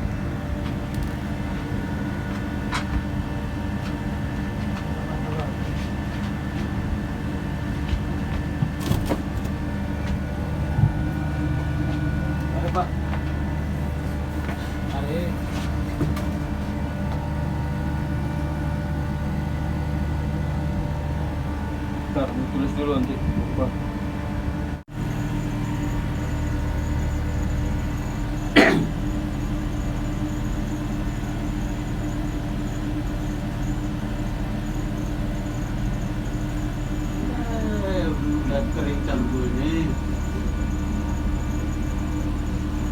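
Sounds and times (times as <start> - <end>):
ship machinery droning: 0.0 - 42.9
steady low tone: 9.4 - 42.9.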